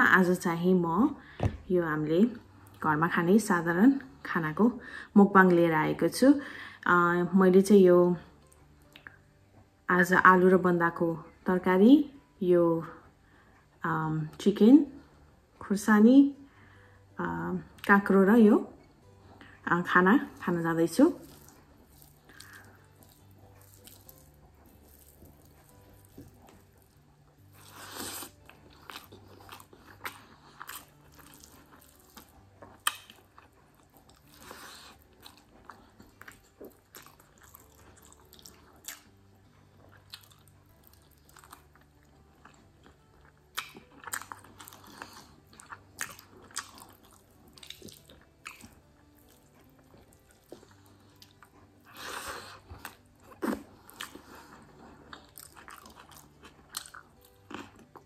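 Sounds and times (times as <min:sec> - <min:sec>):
chewing and biting food: 0:20.2 - 0:58.0.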